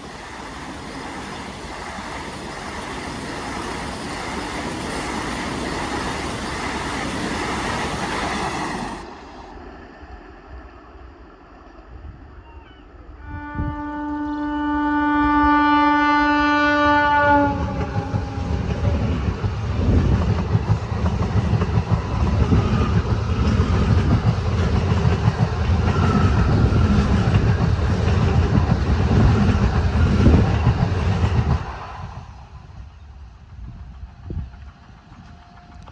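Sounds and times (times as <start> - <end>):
train wheels clattering on rails: 0.0 - 9.0, 17.5 - 32.4, 33.3 - 35.9
loud train noise: 0.0 - 35.9
train horn: 13.1 - 18.8, 35.2 - 35.9.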